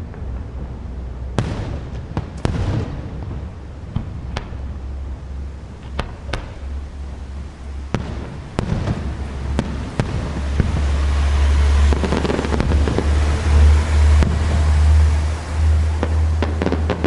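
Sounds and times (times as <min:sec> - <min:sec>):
fireworks bursting with sharp bangs: 0:00.0 - 0:17.0
steady low rumble: 0:00.0 - 0:17.0.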